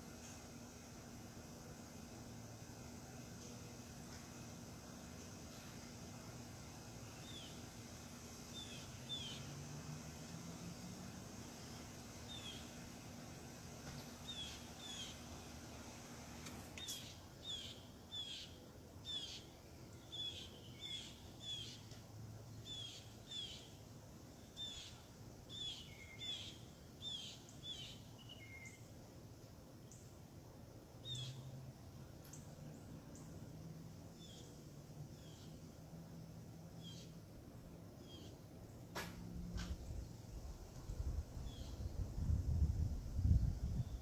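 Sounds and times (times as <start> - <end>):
faint outdoor background: 0.0 - 44.0
steady low hum: 0.0 - 44.0
small bird chirping: 7.0 - 7.7, 8.4 - 9.6, 11.6 - 12.8, 14.2 - 15.4, 16.8 - 22.0, 22.6 - 23.8, 24.4 - 28.9, 31.0 - 31.6, 36.8 - 37.2, 38.0 - 38.4.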